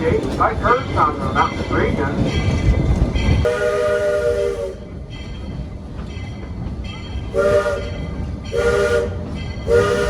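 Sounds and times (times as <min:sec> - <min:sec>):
train rumbling along: 0:00.0 - 0:10.0
steam locomotive whistle blasts: 0:03.4 - 0:05.0, 0:07.3 - 0:10.0.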